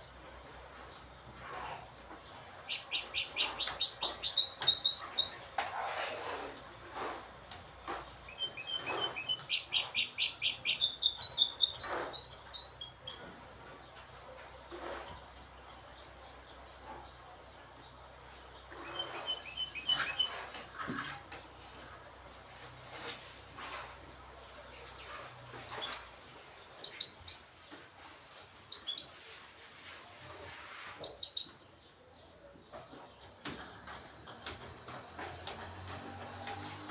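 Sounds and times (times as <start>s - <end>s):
finch singing: 2.6s - 5.4s, 8.2s - 13.4s, 18.7s - 20.6s, 26.8s - 27.5s, 28.7s - 29.1s, 31.0s - 31.6s.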